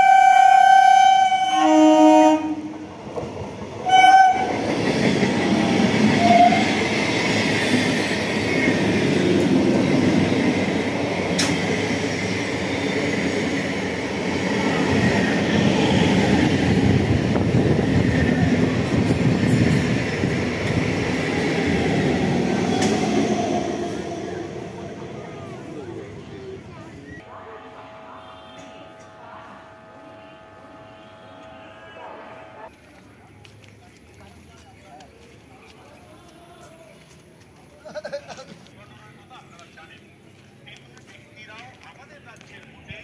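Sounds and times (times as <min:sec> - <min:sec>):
train horn: 0:00.0 - 0:02.8, 0:03.8 - 0:04.6, 0:06.1 - 0:06.8, 0:27.2 - 0:32.7
train wheels rumbling on rails: 0:02.5 - 0:27.2.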